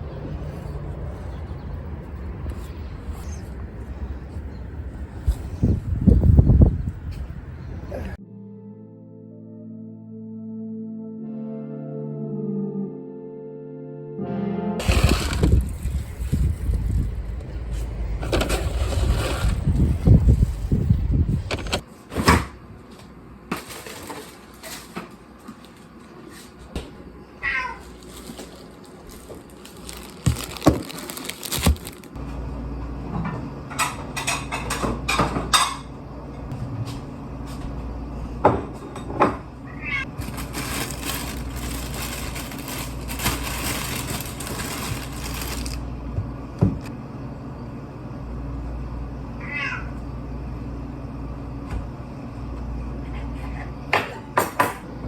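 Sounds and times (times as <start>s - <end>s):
cat meowing: 27.4s - 27.9s, 39.7s - 40.1s, 49.4s - 50.0s.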